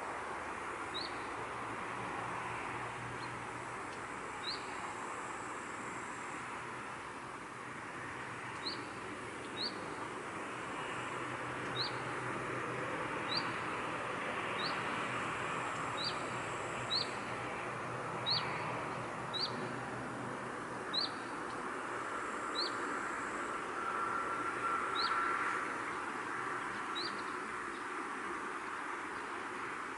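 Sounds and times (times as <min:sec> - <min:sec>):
outdoor ambient hiss: 0:00.0 - 0:29.9
small bird chirping: 0:09.5 - 0:09.8, 0:11.7 - 0:12.0, 0:13.3 - 0:13.6, 0:14.6 - 0:14.8, 0:16.9 - 0:17.2, 0:18.2 - 0:18.6, 0:19.3 - 0:19.6, 0:20.9 - 0:21.3, 0:26.9 - 0:27.4.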